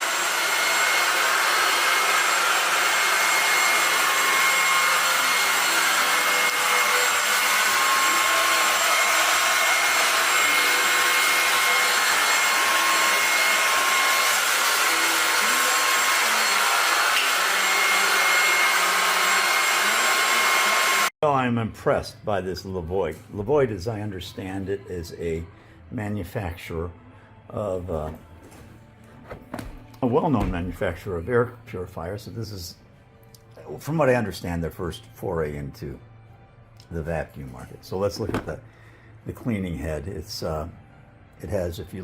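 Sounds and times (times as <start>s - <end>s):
stick vacuum running: 0.0s - 21.1s.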